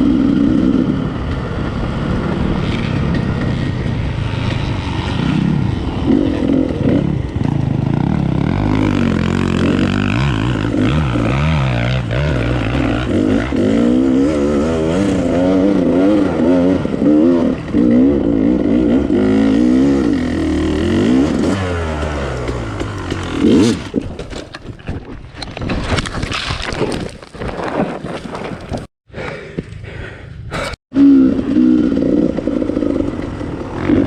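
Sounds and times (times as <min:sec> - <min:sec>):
dirt bike engine revving: 0:00.0 - 0:24.0, 0:31.0 - 0:34.0.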